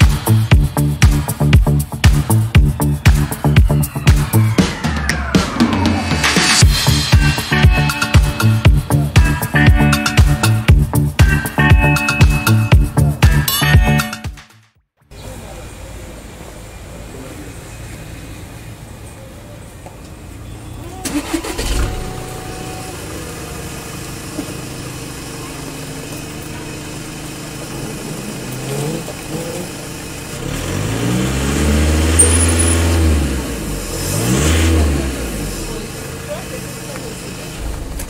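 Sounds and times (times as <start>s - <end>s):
diesel engine starting and revving: 0.0s - 13.4s, 15.1s - 38.0s.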